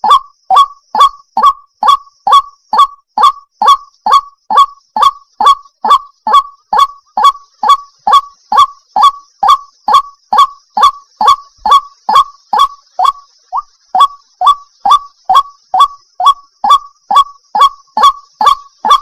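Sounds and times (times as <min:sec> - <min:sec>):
waterhen calling: 0:00.0 - 0:19.0.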